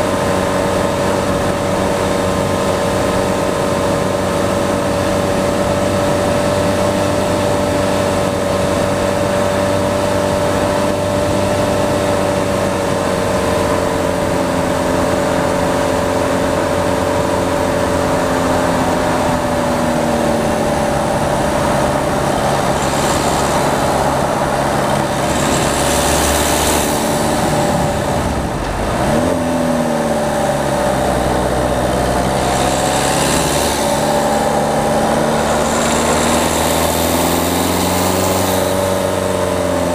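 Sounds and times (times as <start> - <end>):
diesel car engine pulling: 0.0 - 39.9
hissing rushes: 19.7 - 29.9.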